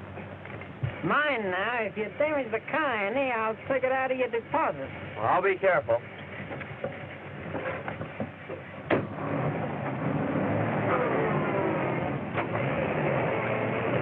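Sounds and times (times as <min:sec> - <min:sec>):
sharp knock: 0:08.9 - 0:09.2
car engine pulling away: 0:08.9 - 0:14.0.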